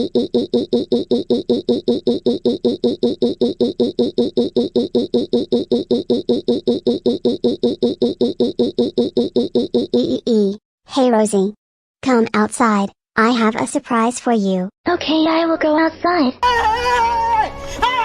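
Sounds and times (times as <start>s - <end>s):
synthesized cartoon voice stuttering laugh: 0.0s - 10.2s.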